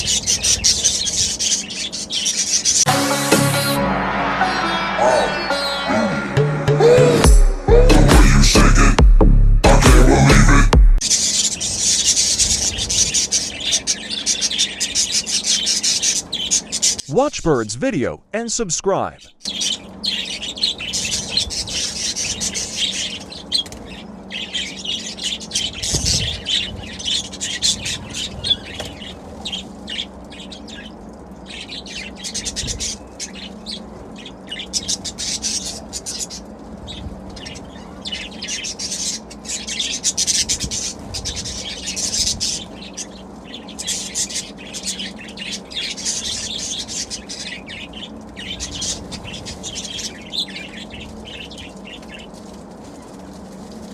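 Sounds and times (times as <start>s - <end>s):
budgerigars chirping and chattering: 0.0s - 3.0s, 11.0s - 17.0s, 19.2s - 53.6s.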